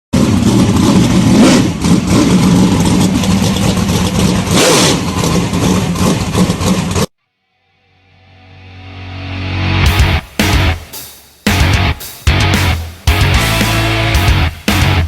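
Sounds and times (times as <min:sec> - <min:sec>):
race car engine: 0:00.1 - 0:07.2, 0:11.5 - 0:15.0.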